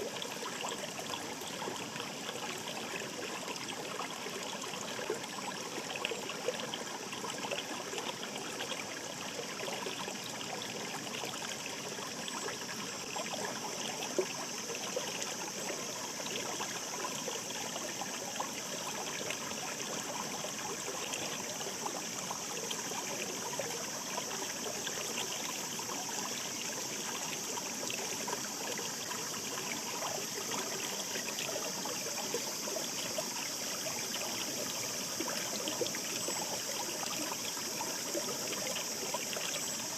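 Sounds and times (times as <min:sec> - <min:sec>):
shallow stream babbling: 0:00.0 - 0:39.9
water trickling and splashing: 0:00.0 - 0:39.9.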